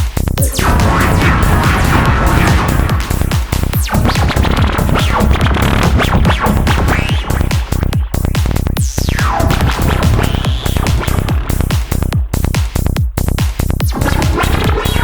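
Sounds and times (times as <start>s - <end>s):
driving bass throb: 0.0s - 15.0s
psytrance music: 0.0s - 15.0s
synth zaps and sweeps: 0.4s - 12.2s.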